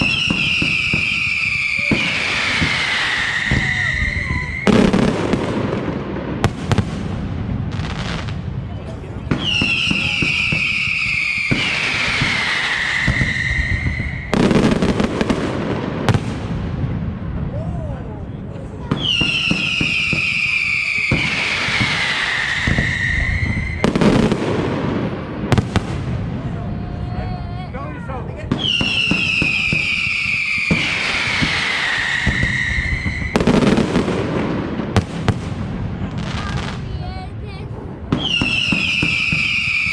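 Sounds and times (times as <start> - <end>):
whistling firework: 0.0 - 16.7, 18.9 - 27.8, 28.5 - 36.9, 37.8 - 39.9
crackling firework reports: 0.0 - 39.9.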